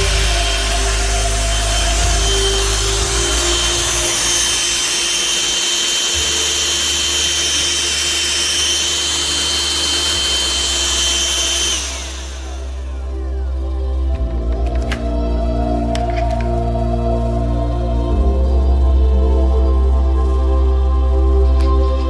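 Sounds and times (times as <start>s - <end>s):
vacuum cleaner whining: 0.0s - 15.0s.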